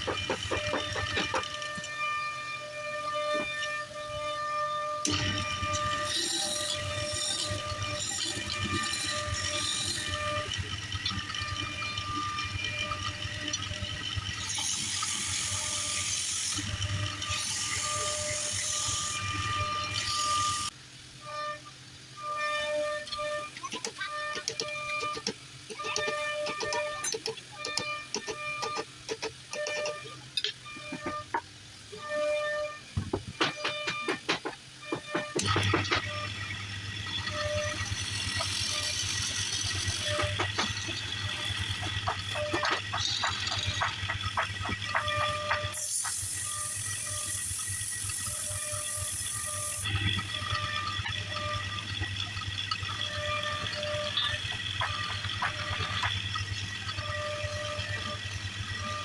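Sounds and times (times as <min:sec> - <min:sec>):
flute music: 0:00.0 - 0:14.1, 0:16.6 - 0:47.4, 0:48.3 - 0:59.0
tool scraping spinning wood: 0:00.0 - 0:20.8, 0:22.2 - 0:59.0
wood lathe humming: 0:00.0 - 0:20.8, 0:22.2 - 0:59.0.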